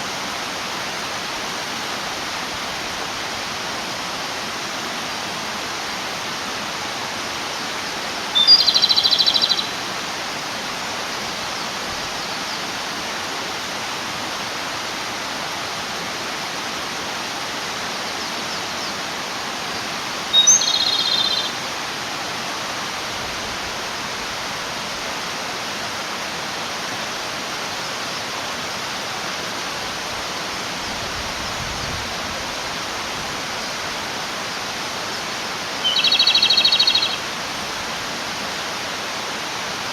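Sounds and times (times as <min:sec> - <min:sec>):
stream flowing: 0:00.0 - 0:39.9
bird singing with rattling trill: 0:08.4 - 0:09.8, 0:20.3 - 0:21.6, 0:35.8 - 0:37.2.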